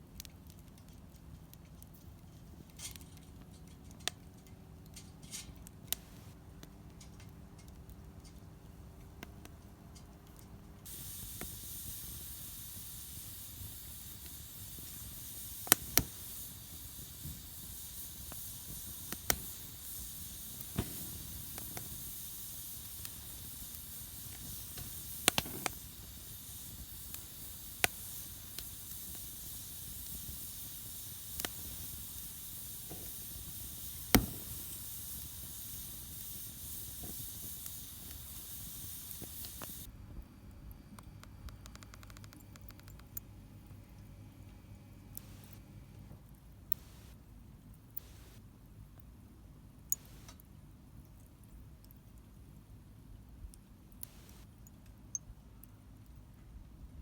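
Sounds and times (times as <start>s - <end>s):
burning wood popping and crackling: 0.0s - 39.9s, 45.2s - 45.6s, 48.0s - 48.4s, 49.9s - 52.4s, 54.0s - 54.5s
fire hissing: 5.2s - 8.0s, 10.7s - 39.9s, 45.1s - 45.8s, 46.7s - 47.2s, 48.0s - 48.5s, 49.9s - 50.5s, 54.0s - 54.5s.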